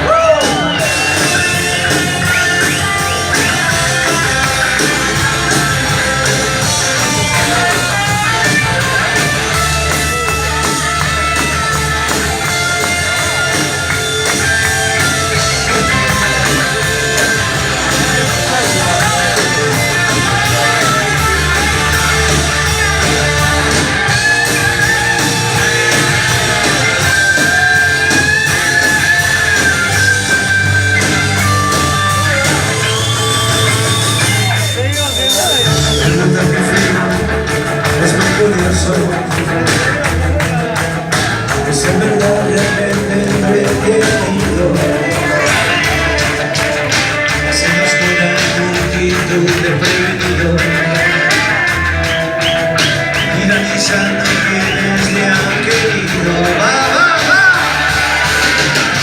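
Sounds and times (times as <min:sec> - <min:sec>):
bass guitar: 0:00.0 - 0:59.0
electric guitar: 0:00.0 - 0:59.0
steady drum beat: 0:00.0 - 0:59.0.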